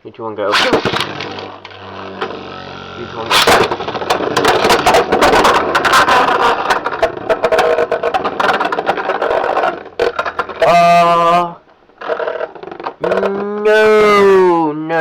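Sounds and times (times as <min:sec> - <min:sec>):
spinning tops clacking: 0:00.5 - 0:11.4
spinning tops whirring: 0:00.5 - 0:11.5.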